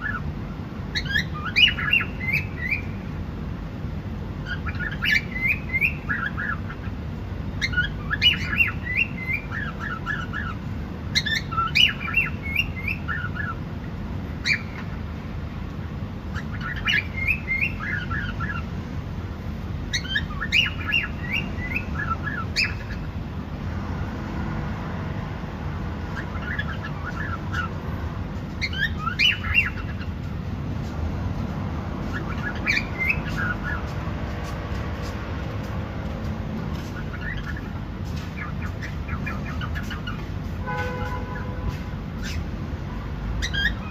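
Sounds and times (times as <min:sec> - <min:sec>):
cockatiel chirps and squawks: 0:00.0 - 0:00.2, 0:00.9 - 0:02.9, 0:04.4 - 0:06.9, 0:07.6 - 0:13.6, 0:14.4 - 0:15.0, 0:16.3 - 0:18.6, 0:19.9 - 0:23.1, 0:26.2 - 0:27.8, 0:28.6 - 0:30.2, 0:32.0 - 0:33.9, 0:36.7 - 0:40.3, 0:41.7 - 0:42.5, 0:43.4 - 0:43.9.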